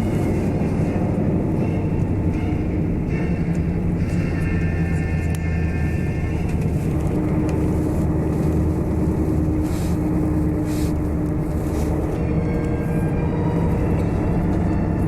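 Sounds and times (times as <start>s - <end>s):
coach engine and road rumble: 0.0s - 15.0s.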